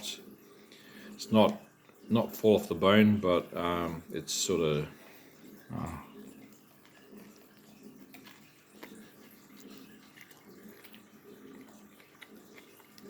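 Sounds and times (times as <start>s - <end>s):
person chewing food: 5.1s - 13.0s.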